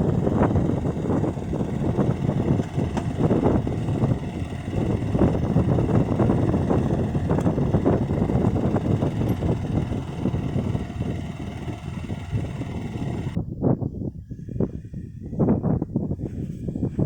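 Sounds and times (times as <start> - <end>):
small tractor engine rumbling: 0.0 - 13.4.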